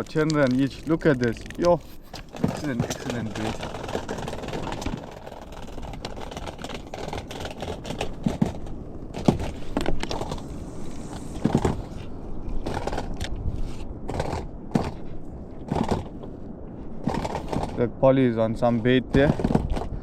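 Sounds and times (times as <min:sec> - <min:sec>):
knocks and scrapes of handling: 0:00.0 - 0:16.4.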